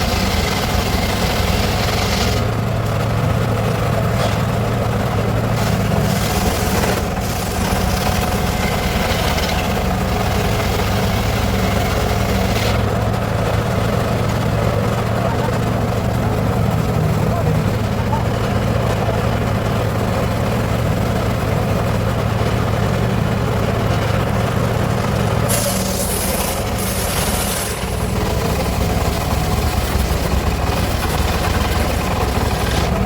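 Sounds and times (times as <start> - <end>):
saw hissing cutting wood: 5.6 - 9.7, 25.4 - 28.2.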